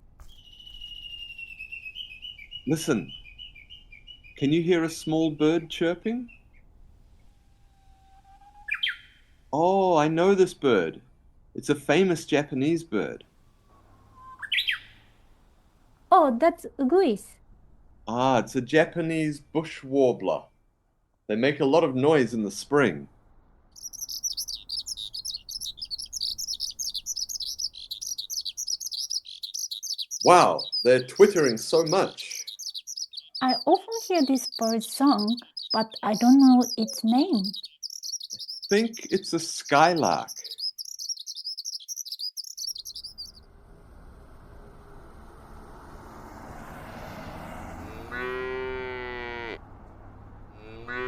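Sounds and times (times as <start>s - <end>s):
outdoor background noise: 0.0s - 51.0s
skylark twittering song: 0.2s - 5.2s, 23.8s - 43.4s
cow mooing: 47.7s - 49.6s, 50.5s - 51.0s.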